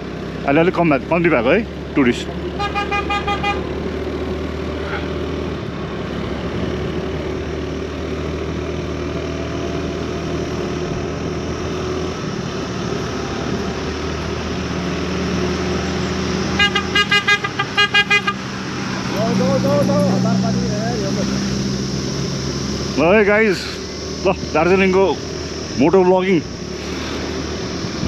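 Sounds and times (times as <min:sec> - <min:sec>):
road noise: 0:00.0 - 0:28.0
vehicle horn short toots: 0:02.6 - 0:03.7, 0:16.6 - 0:18.5.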